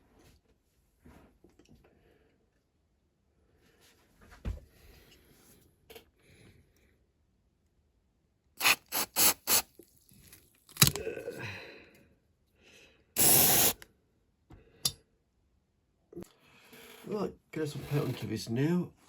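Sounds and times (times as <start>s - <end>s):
short hiss: 8.6s - 9.7s, 13.2s - 13.8s.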